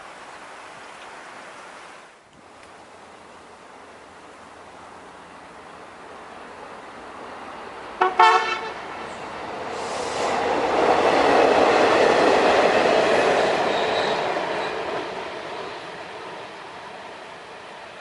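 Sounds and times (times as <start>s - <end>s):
train passing: 4.0s - 18.0s
train horn blast: 8.0s - 8.9s.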